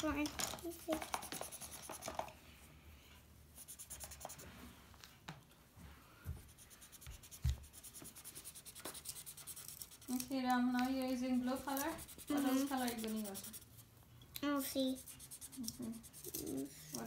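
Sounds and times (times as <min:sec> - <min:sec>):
markers scratching on paper: 0:00.0 - 0:02.3, 0:03.6 - 0:04.5, 0:06.4 - 0:17.0.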